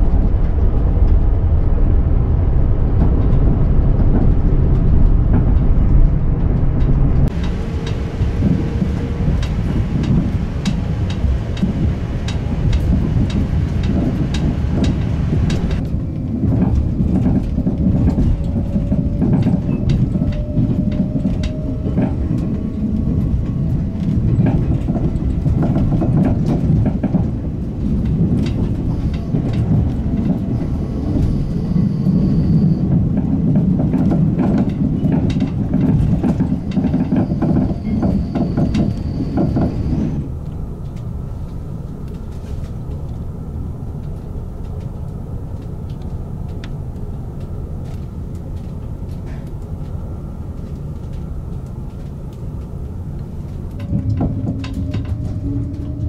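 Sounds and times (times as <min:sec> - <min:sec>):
quiet steady train hum: 0:00.0 - 0:56.0
wheels rumbling on rail: 0:00.0 - 0:56.0
rail-joint clicks: 0:03.0 - 0:56.0.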